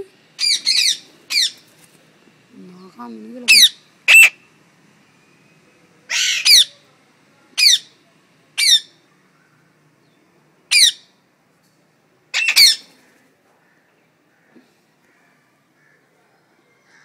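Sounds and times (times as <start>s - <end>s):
parrot squawking: 0.4s - 1.6s, 3.5s - 4.4s, 6.1s - 6.8s, 7.6s - 7.9s, 8.6s - 9.0s, 10.7s - 11.1s, 12.3s - 12.9s.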